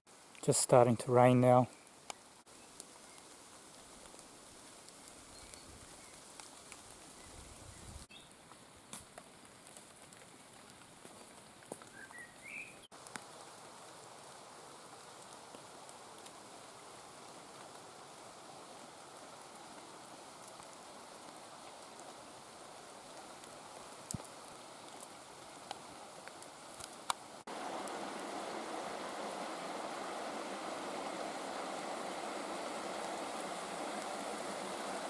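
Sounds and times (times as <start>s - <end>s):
light rain falling: 0.1s - 35.0s
bird chirps: 11.9s - 12.9s
raindrops ticking: 19.0s - 35.0s.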